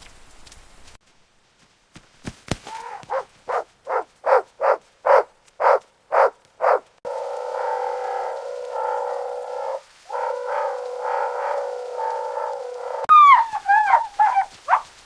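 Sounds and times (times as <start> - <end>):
dog barking: 3.0 - 6.9, 10.1 - 14.9.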